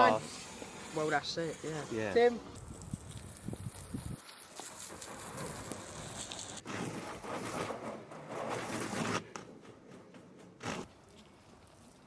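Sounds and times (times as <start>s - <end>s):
rubbing and scrubbing car: 0.3s - 12.0s.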